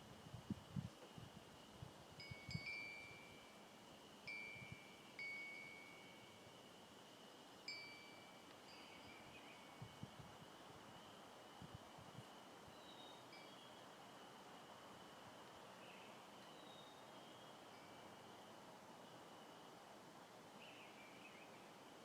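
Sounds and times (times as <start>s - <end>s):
faint high hum: 0.0s - 22.0s
wind chime ringing: 7.7s - 9.2s.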